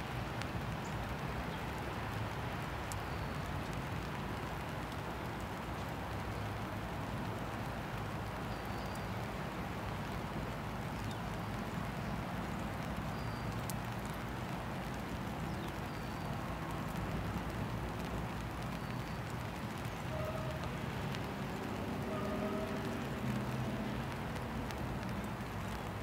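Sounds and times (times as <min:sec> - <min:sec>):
cars driving over wet crossing: 0:00.0 - 0:26.0
rain hissing on pavement: 0:00.0 - 0:26.0
distant diesel locomotive rumble: 0:20.1 - 0:24.2.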